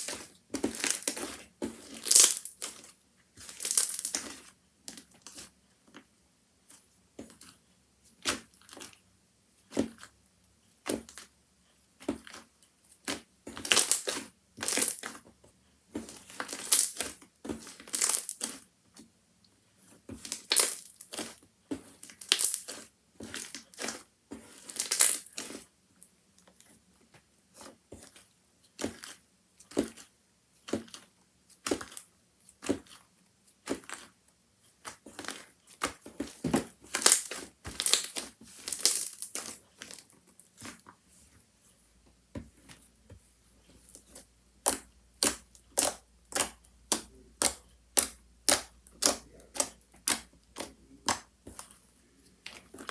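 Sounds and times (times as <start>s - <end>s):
slime squished by hand: 43.9s - 51.8s.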